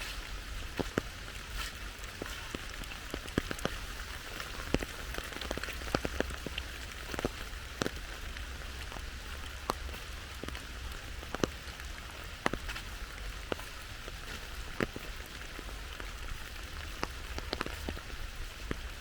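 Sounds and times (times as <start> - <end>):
rain hissing: 0.0 - 19.0
raindrops ticking close by: 0.0 - 19.0.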